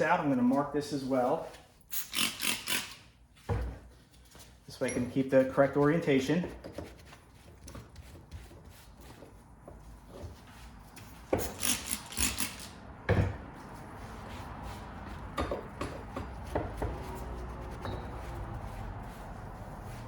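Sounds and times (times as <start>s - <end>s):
metal scraping strokes: 10.6s - 12.8s.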